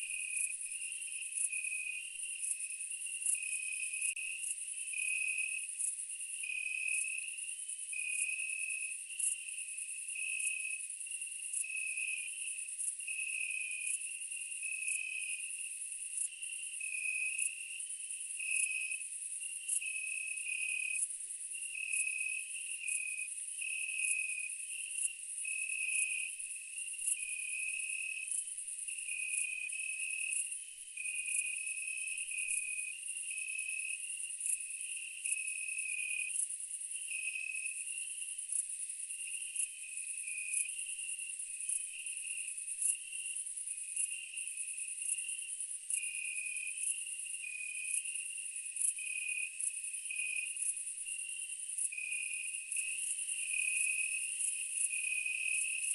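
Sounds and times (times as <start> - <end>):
low pulsing insect chirp: 0.0 - 55.9
high-pitched insect trill: 24.0 - 55.9.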